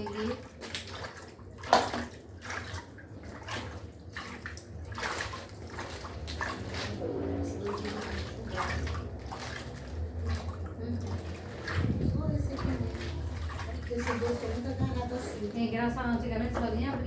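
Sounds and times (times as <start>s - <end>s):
water and clothes sloshing: 0.0s - 17.0s
low motor hum: 4.7s - 17.0s.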